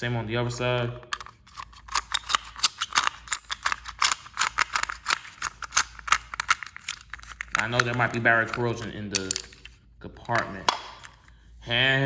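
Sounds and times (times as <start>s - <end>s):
toy train clicking and rattling: 1.1s - 9.8s.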